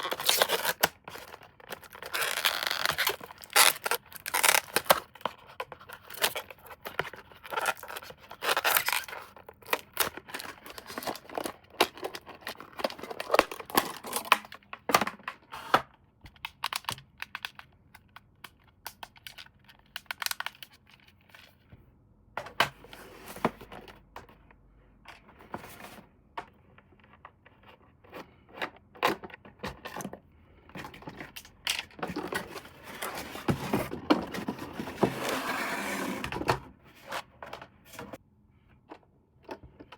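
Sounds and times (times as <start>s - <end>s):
packaging tearing and crinkling: 0.0s - 5.2s, 6.0s - 14.5s.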